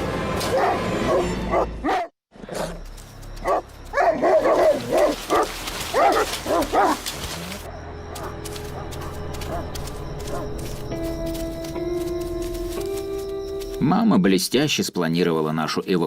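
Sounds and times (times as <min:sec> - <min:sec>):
dog barking: 0:00.5 - 0:02.1, 0:03.4 - 0:07.4, 0:08.1 - 0:10.6.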